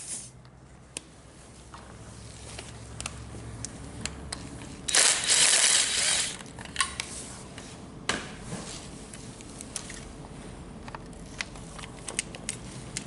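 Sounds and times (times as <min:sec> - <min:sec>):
compressed air hissing: 0:00.0 - 0:00.4.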